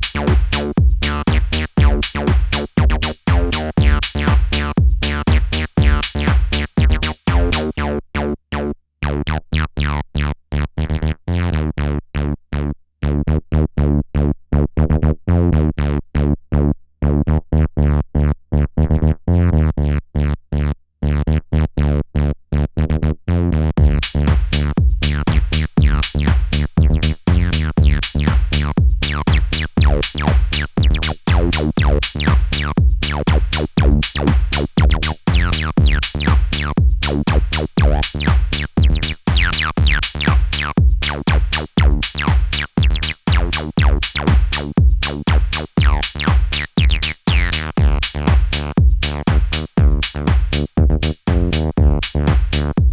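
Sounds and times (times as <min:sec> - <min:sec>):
drum machine loop: 0:00.0 - 0:07.8, 0:23.8 - 0:52.9
acid synth bassline: 0:00.0 - 0:10.3, 0:23.8 - 0:52.9.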